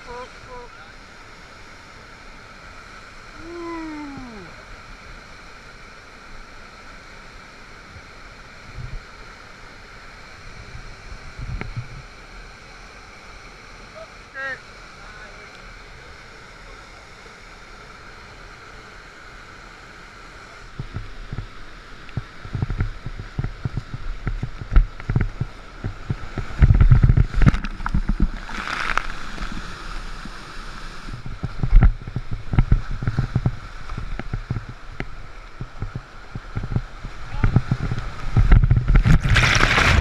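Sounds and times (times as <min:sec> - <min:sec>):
rushing whitewater: 0:00.0 - 0:40.0
water splashing: 0:20.8 - 0:40.0.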